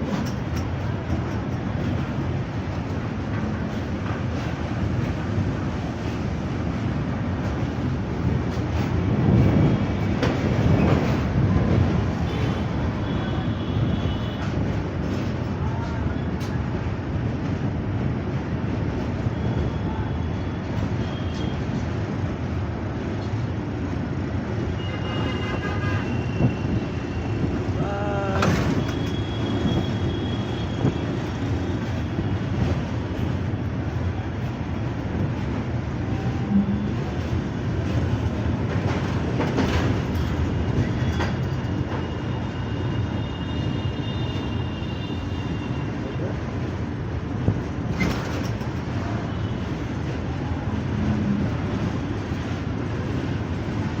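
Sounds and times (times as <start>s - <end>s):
moving vehicle rumble and rattle: 0.0s - 19.8s, 20.6s - 54.0s
moving vehicle rumbling: 25.2s - 42.0s, 45.9s - 54.0s.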